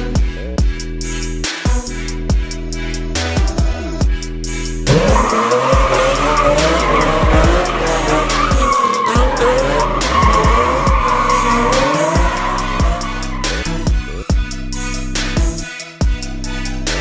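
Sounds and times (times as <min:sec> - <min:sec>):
background music with steady beat: 0:00.0 - 0:17.0
car tyres squealing: 0:04.7 - 0:14.3.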